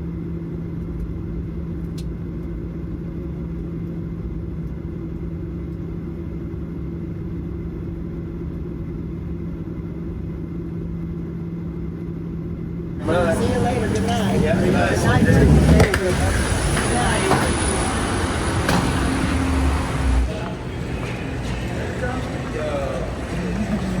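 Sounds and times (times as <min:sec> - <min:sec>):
constant low hum: 0:00.0 - 0:24.0
airplane cabin engine drone: 0:13.0 - 0:24.0.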